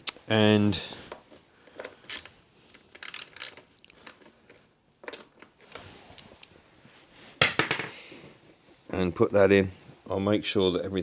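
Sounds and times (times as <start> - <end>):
tools clicking and scraping: 1.8 - 6.5.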